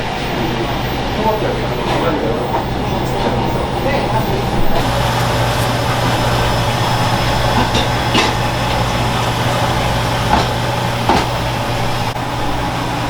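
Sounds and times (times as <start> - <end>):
steady machine hum: 0.0 - 13.0
knocks on wood: 10.3 - 11.4.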